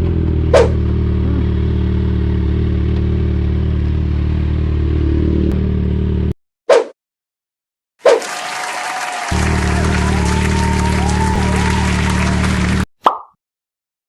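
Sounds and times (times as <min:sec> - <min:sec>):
motorcycle engine idling: 0:00.0 - 0:06.2.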